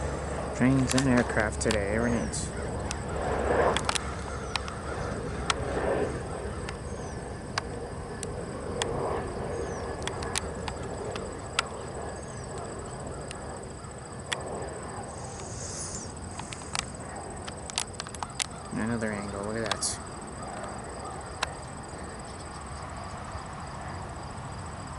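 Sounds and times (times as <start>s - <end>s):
low rumble: 0.0s - 17.7s
soft rushing swells: 0.0s - 24.6s
high-pitched insect drone: 0.0s - 24.9s
sharp clicks: 0.7s - 3.0s, 3.7s - 4.8s, 10.0s - 11.8s, 15.3s - 20.8s.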